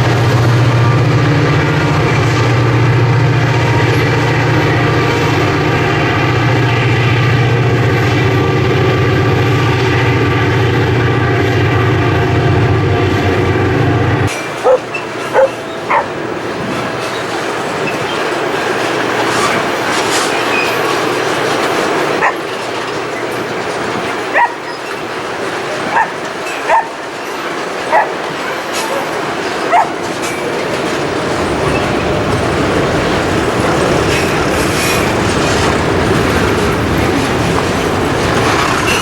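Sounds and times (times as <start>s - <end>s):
diesel locomotive engine drone: 0.0s - 39.0s
dog barking: 14.6s - 16.1s, 22.2s - 22.4s, 24.3s - 24.7s, 25.9s - 27.0s, 27.9s - 28.2s, 29.7s - 30.0s.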